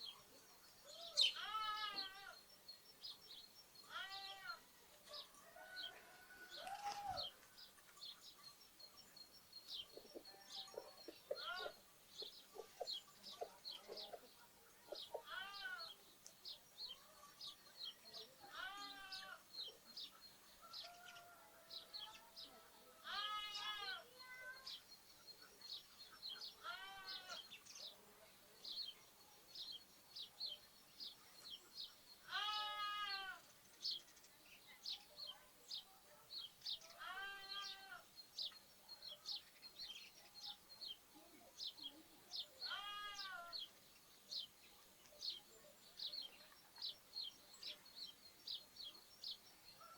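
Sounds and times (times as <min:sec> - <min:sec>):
small birds chirping: 0:00.0 - 0:49.9
lambs bleating: 0:03.9 - 0:04.6, 0:23.0 - 0:24.0, 0:26.6 - 0:27.4, 0:32.3 - 0:33.4, 0:37.0 - 0:38.0, 0:42.7 - 0:43.5.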